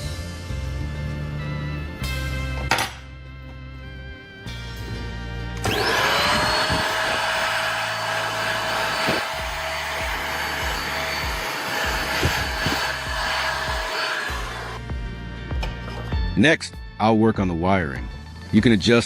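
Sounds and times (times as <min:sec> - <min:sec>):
power tool motor whining: 0:05.6 - 0:14.8.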